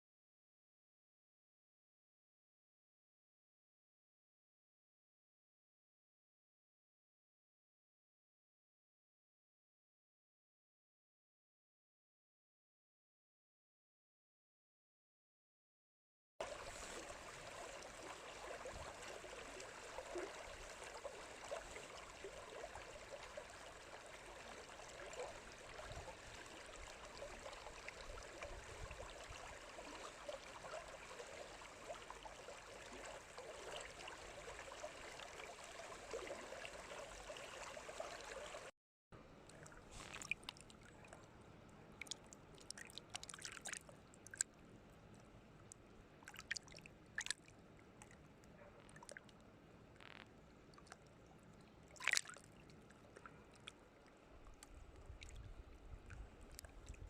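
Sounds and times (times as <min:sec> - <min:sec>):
stream babbling: 0:16.4 - 0:38.7, 0:52.0 - 0:55.4.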